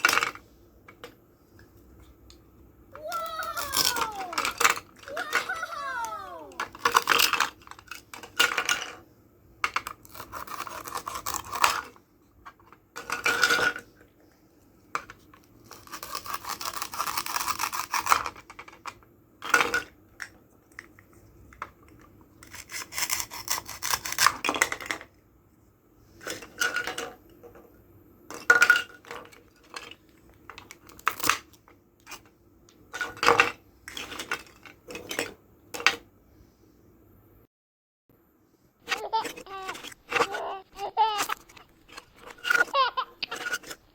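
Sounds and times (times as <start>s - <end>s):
toy knife sawing plastic: 10.0s - 11.9s, 15.7s - 18.4s, 22.4s - 24.4s, 38.9s - 43.9s.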